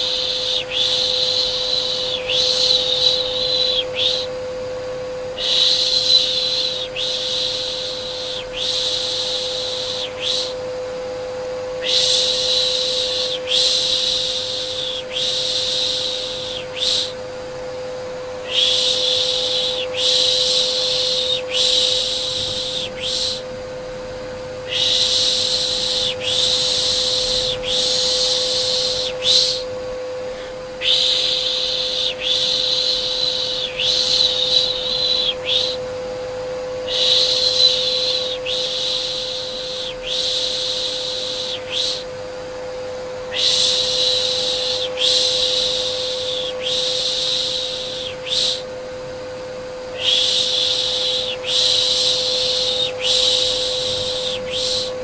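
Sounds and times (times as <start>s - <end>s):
vacuum cleaner humming: 0.0s - 55.0s
person shushing: 18.4s - 23.5s, 24.7s - 35.8s, 50.0s - 55.0s.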